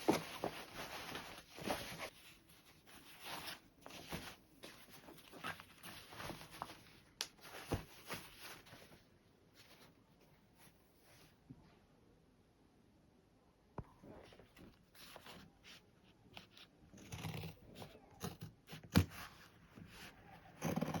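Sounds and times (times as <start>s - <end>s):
fabric rustling: 0.0s - 11.4s.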